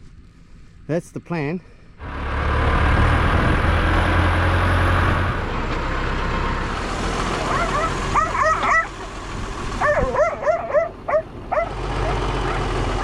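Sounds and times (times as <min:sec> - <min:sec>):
tractor engine under load: 0:02.0 - 0:13.0
dog barking: 0:07.5 - 0:08.9, 0:09.8 - 0:12.7.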